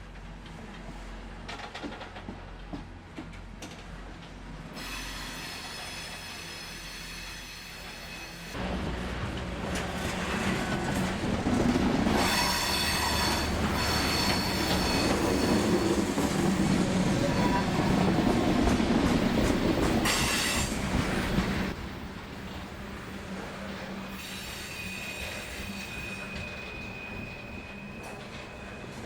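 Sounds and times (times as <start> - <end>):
freight train rumble: 0.0 - 29.0
train wheels squealing: 4.8 - 8.6, 12.2 - 16.2, 17.0 - 18.2, 20.0 - 21.3, 24.0 - 29.0.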